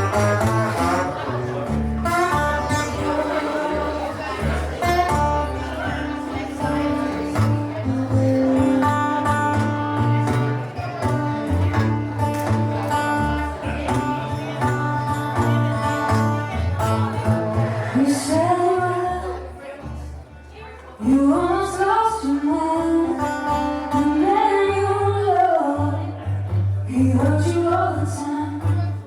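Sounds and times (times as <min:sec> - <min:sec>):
blues band playing: 0:00.0 - 0:19.1
electric guitar: 0:00.0 - 0:29.0.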